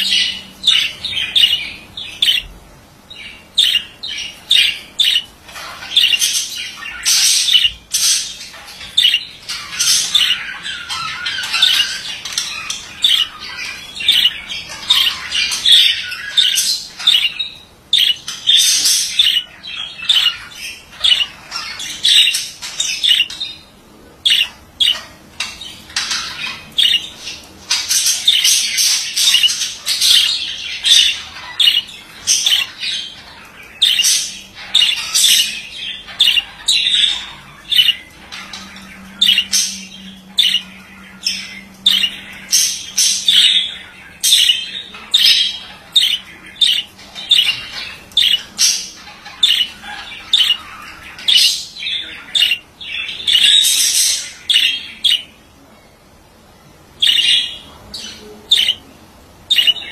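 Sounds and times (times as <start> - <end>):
budgerigar chattering: 0.0 - 2.5, 3.2 - 55.4, 57.0 - 58.8, 59.5 - 59.9.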